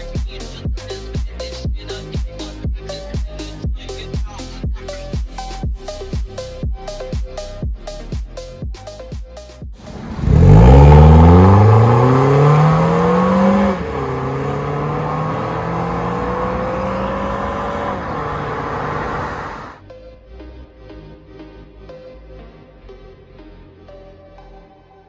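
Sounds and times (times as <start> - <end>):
car exhaust accelerating hard: 9.8 - 19.8.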